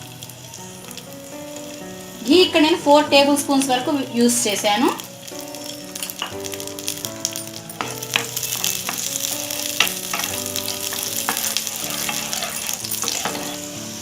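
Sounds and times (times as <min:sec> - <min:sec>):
raisins sizzling in a pan: 0:00.0 - 0:14.0
soft background music: 0:00.0 - 0:14.0
spoon stirring and clicking on pan: 0:09.7 - 0:13.6.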